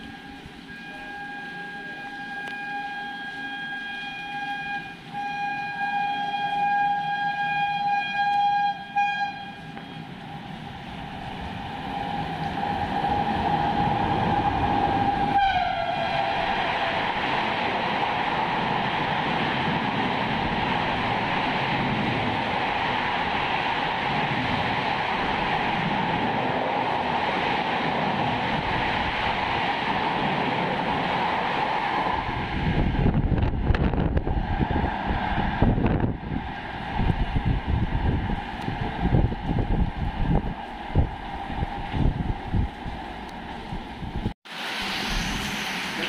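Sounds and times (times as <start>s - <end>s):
train horn blast: 0.0s - 10.2s, 11.9s - 17.2s
train coaches rushing past: 9.5s - 43.8s.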